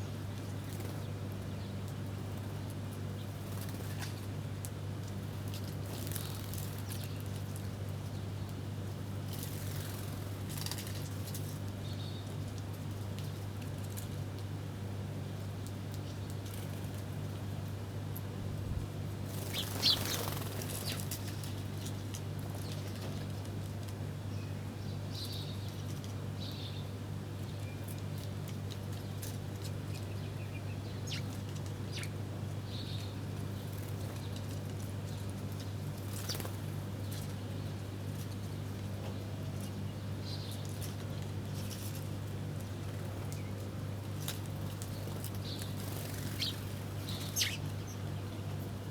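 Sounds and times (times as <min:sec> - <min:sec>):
small birds chirping: 0:19.3 - 0:21.6, 0:29.1 - 0:34.4, 0:35.1 - 0:37.7, 0:44.6 - 0:48.5
downward-sweeping bird calls: 0:46.4 - 0:48.0.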